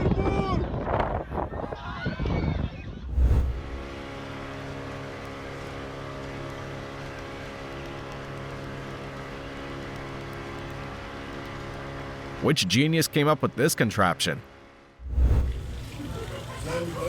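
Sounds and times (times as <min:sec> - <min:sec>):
engine running: 0:03.1 - 0:12.6, 0:14.4 - 0:17.0.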